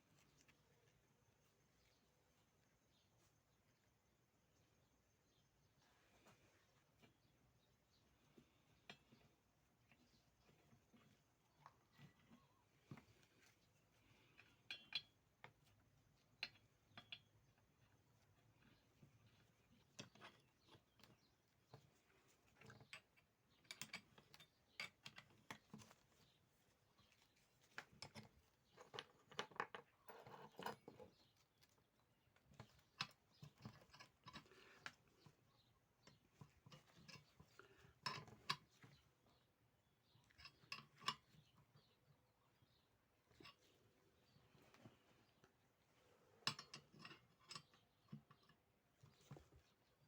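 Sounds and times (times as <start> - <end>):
metal parts and tools clicking: 36.1 - 38.9, 46.4 - 48.6.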